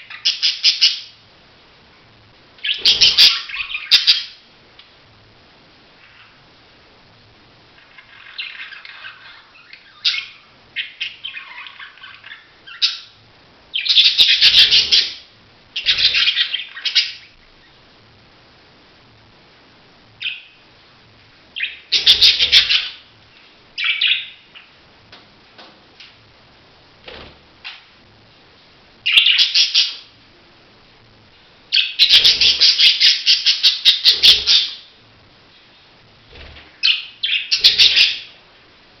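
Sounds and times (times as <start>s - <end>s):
budgerigars chirping and chattering: 0.0s - 1.1s, 2.6s - 4.4s, 7.8s - 17.4s, 20.2s - 20.6s, 21.6s - 23.0s, 23.8s - 24.7s, 29.0s - 30.1s, 31.7s - 34.9s, 36.8s - 38.4s.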